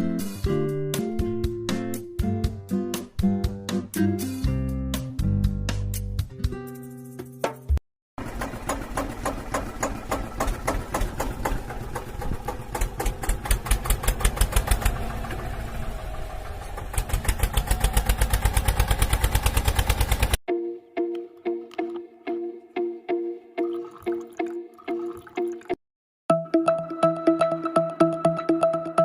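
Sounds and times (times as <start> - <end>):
tractor engine chugging: 8.2 - 20.4.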